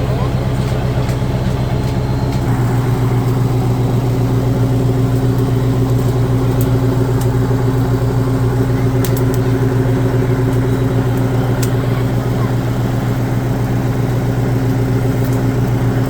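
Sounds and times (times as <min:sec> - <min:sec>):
heavy truck engine droning: 0:00.0 - 0:16.0
faint clicks: 0:09.0 - 0:09.5.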